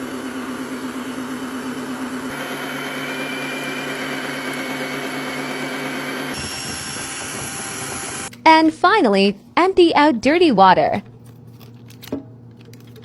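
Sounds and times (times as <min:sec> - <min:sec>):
vacuum motor humming: 0:00.0 - 0:08.4.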